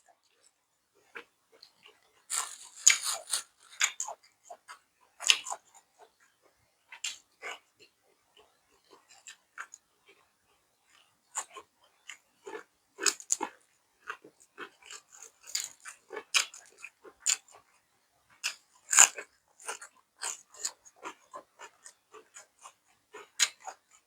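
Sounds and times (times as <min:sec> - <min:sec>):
person chewing crunchy food: 0:01.8 - 0:04.1
wet mouth clicks: 0:02.3 - 0:04.0.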